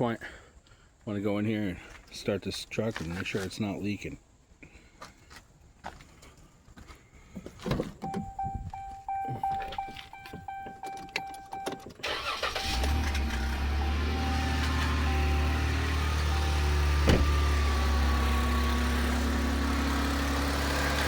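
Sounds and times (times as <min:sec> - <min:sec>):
electronic chime: 0:08.1 - 0:11.8
engine cranking and idling: 0:08.1 - 0:21.0.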